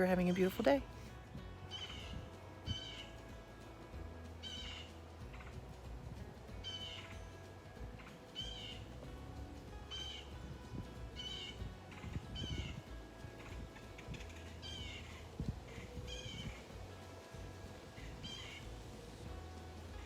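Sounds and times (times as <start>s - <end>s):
bird calling: 1.7s - 3.2s, 4.4s - 5.6s, 6.6s - 7.4s, 9.8s - 10.4s, 11.1s - 16.7s, 17.9s - 18.8s.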